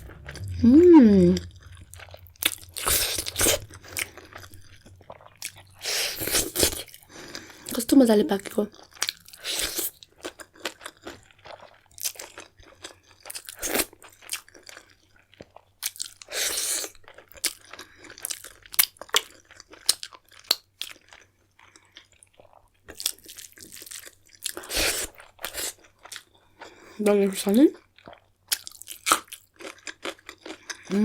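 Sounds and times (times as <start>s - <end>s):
rushing noise: 0.0s - 5.1s
chewing and crunching food: 1.4s - 31.0s.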